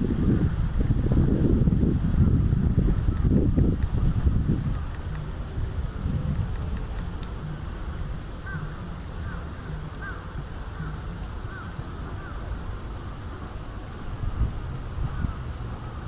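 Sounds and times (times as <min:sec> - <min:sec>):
wind rumble on microphone: 0:00.0 - 0:16.0
birds calling: 0:07.5 - 0:12.5.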